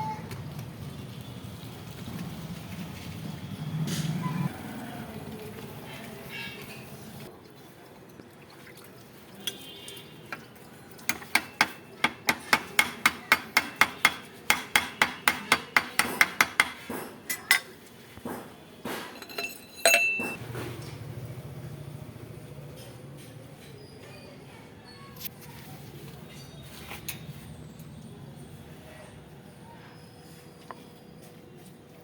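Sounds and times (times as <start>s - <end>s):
hammer striking metal: 11.1s - 17.6s, 18.3s - 20.4s.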